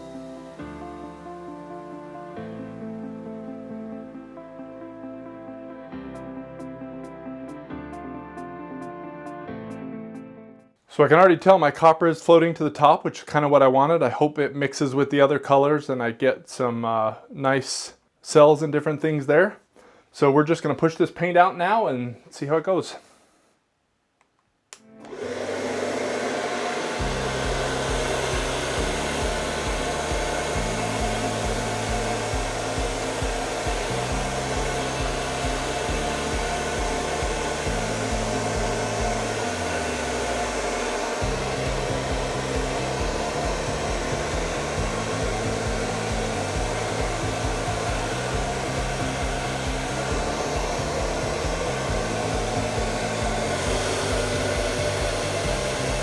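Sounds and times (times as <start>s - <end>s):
hair dryer blowing: 0.0s - 3.5s, 25.0s - 56.0s.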